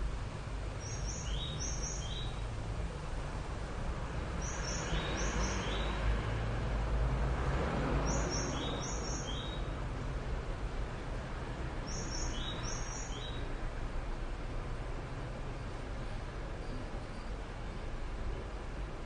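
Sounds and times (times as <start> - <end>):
bird chirping: 0.8 - 2.4, 4.4 - 6.0, 8.0 - 9.7, 11.9 - 13.5.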